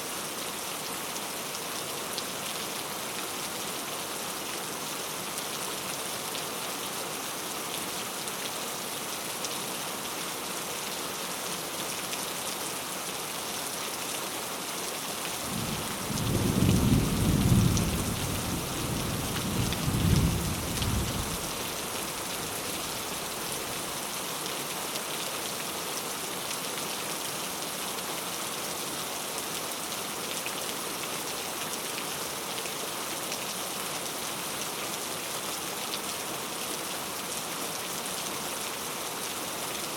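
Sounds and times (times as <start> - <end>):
steady rain hiss: 0.0 - 39.9
thunder rumble: 15.5 - 18.7.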